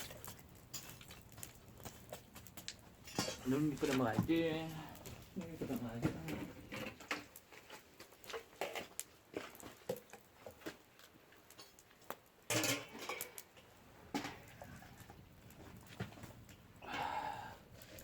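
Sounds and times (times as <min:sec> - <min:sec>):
cookware clatter: 0:12.5 - 0:13.4
cookware and utensils clicking: 0:12.5 - 0:13.5.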